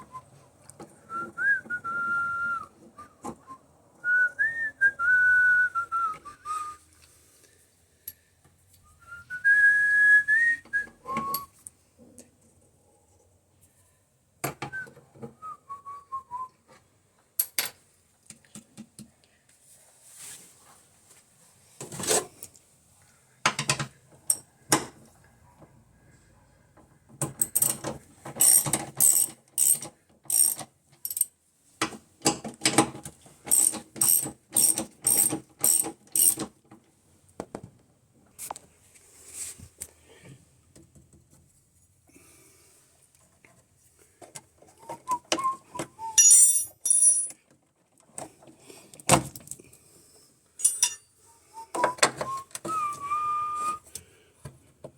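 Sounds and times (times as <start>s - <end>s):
short falling whistle: 51.5s - 53.8s.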